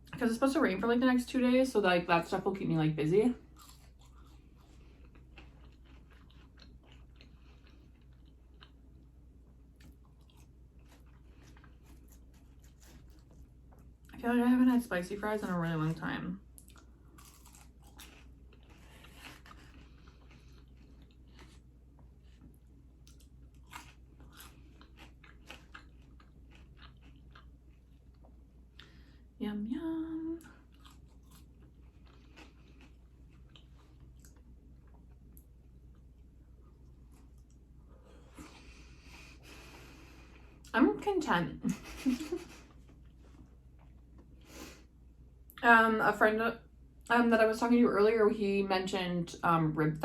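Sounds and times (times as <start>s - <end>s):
low steady hum: 0.0s - 50.0s
person chewing food: 3.4s - 14.1s, 16.5s - 29.1s, 30.4s - 40.7s
mouth chewing: 3.5s - 9.1s, 23.0s - 28.9s.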